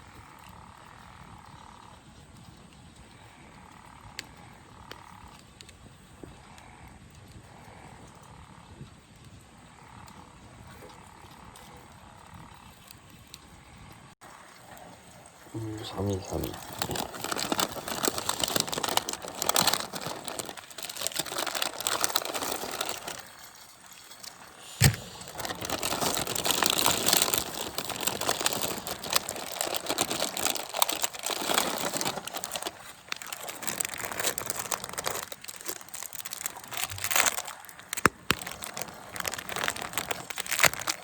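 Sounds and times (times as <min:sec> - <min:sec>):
crinkling and rustling: 0:14.2 - 0:41.0.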